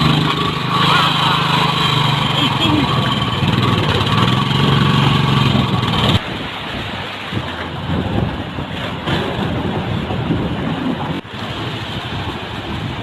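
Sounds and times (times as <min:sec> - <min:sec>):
motorcycle engine running: 0:00.0 - 0:06.3
road noise: 0:00.0 - 0:13.0
wind over microphone: 0:02.7 - 0:13.0.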